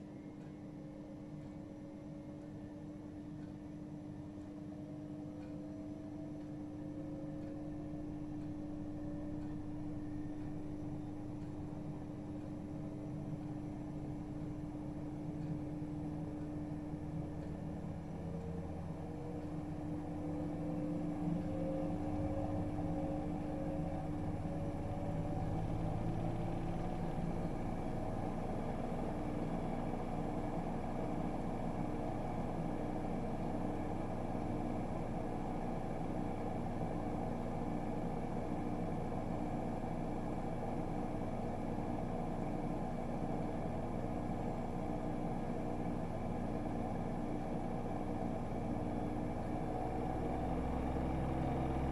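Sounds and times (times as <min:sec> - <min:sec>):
washing machine motor whining: 0:17.9 - 0:51.9.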